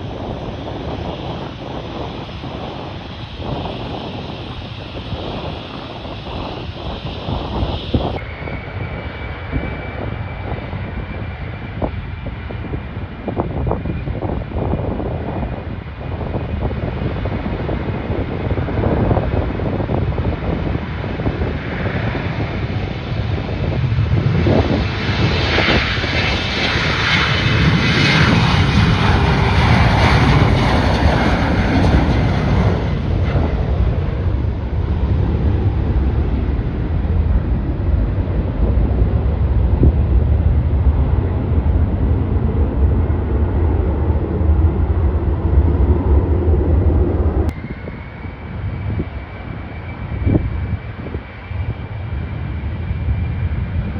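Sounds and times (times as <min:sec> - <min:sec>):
airliner engines passing: 0:00.0 - 0:53.9
steady high whine: 0:18.4 - 0:53.9.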